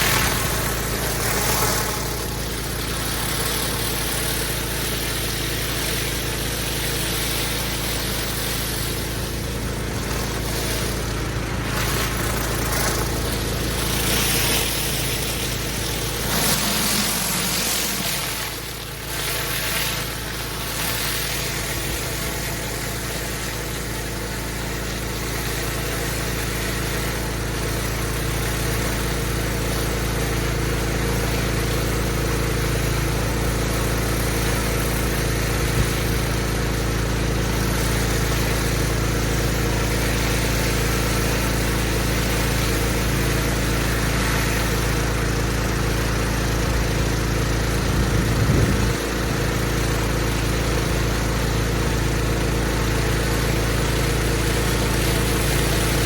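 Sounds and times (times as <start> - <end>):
hiss of water spray: 0.0 - 24.4
pressure washer engine running: 0.0 - 56.0.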